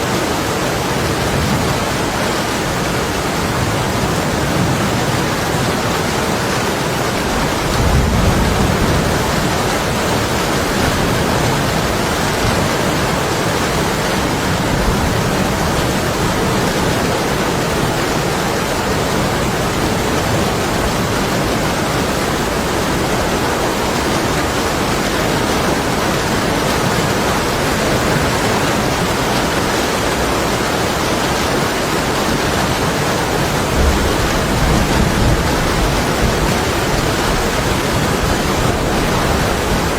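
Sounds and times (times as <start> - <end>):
heavy rain on window glass: 0.0 - 39.9
distant thunder rumble: 7.2 - 27.6, 32.2 - 39.9.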